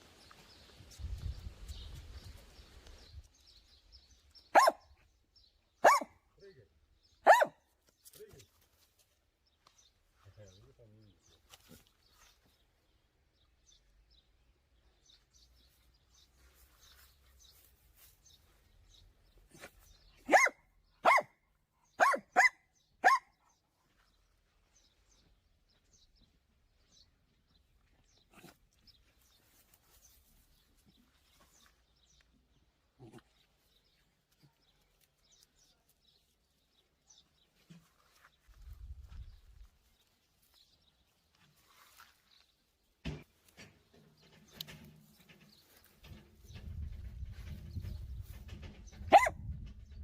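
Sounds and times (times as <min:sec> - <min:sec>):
dog barking: 0:04.5 - 0:04.9, 0:05.8 - 0:06.2, 0:07.2 - 0:07.6, 0:20.2 - 0:21.4, 0:22.0 - 0:23.3, 0:49.1 - 0:49.4.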